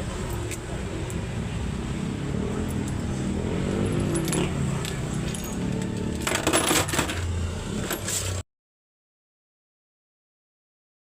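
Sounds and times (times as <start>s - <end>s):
diesel engine running: 0.0s - 8.4s
metallic clinks and rattles: 3.7s - 8.3s.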